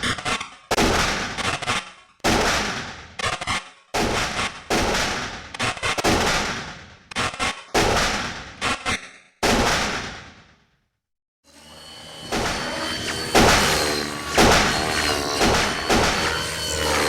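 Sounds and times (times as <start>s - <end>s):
shotgun blasts echoing: 9.4s - 10.3s, 13.3s - 16.4s.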